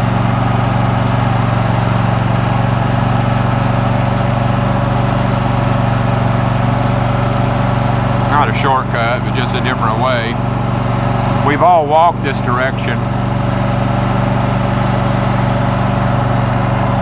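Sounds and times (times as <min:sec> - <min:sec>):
riding lawn mower engine: 0:00.0 - 0:17.0.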